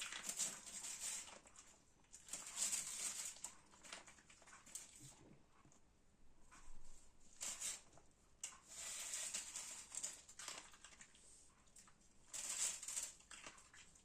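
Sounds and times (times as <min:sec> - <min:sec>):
dog eating noisily: 0:01.2 - 0:05.5.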